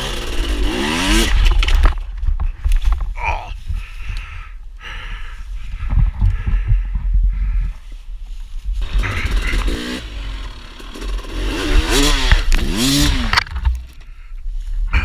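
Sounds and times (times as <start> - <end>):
dirt bike engine revving: 0.0 - 2.0, 8.8 - 14.0
heavy low rumble: 0.4 - 15.0.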